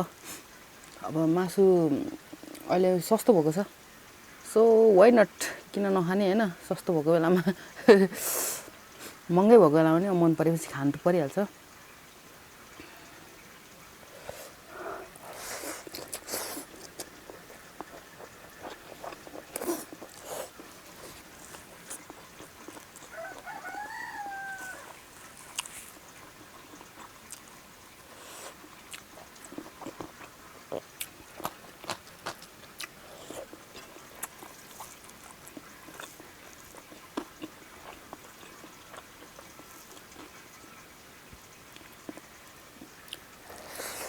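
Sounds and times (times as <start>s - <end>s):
person chewing food: 14.2s - 40.4s, 41.8s - 44.0s
chicken calling: 22.6s - 25.6s.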